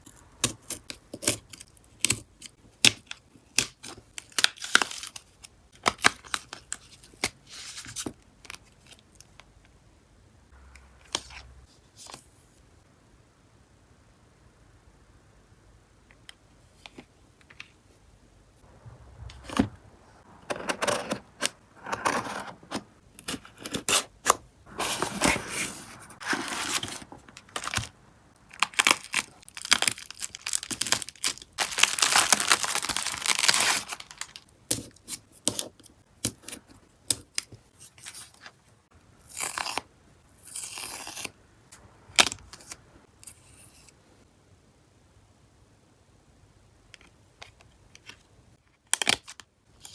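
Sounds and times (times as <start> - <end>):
packaging tearing and crinkling: 26.2 - 34.5.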